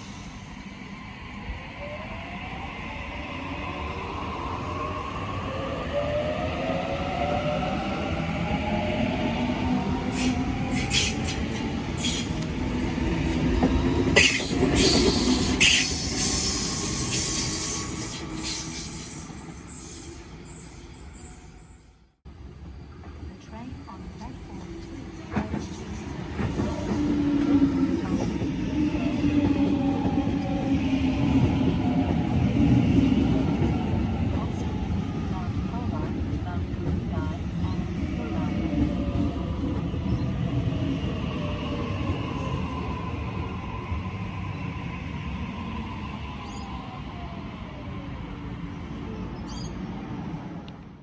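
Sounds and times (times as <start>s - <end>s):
train rumbling along track: 0.0s - 51.0s
wheel and brake squeal: 10.1s - 13.4s, 14.2s - 22.0s.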